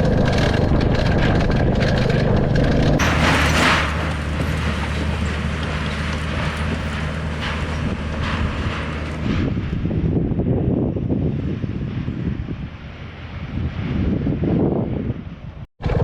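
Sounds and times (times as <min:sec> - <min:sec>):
motorcycle engine running: 0:00.0 - 0:03.2, 0:15.8 - 0:16.0
wind and road noise: 0:00.0 - 0:16.0.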